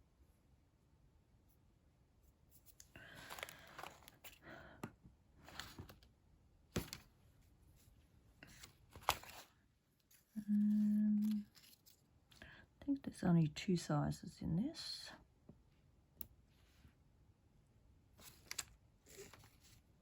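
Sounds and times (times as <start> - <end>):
sheet crinkling and rustling: 3.0 - 4.4, 8.4 - 9.6.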